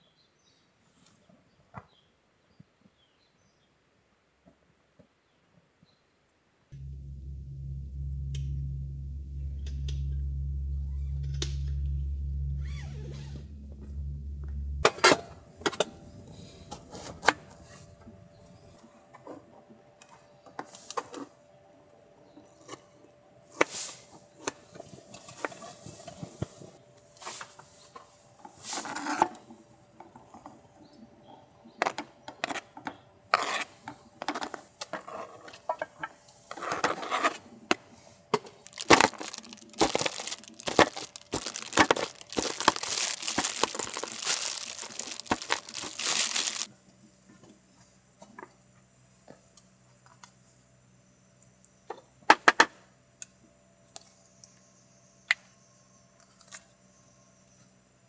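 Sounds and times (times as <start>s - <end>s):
coffee beans crunching in grinder: 38.4s - 46.7s.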